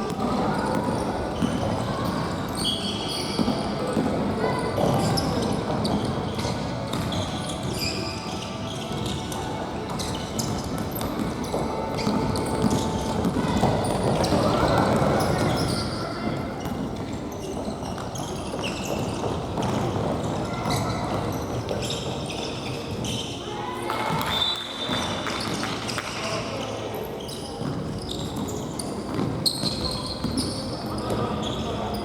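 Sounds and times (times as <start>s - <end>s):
ball kicked and bouncing on gym floor: 9.9s - 15.8s, 16.6s - 21.9s, 27.6s - 31.5s.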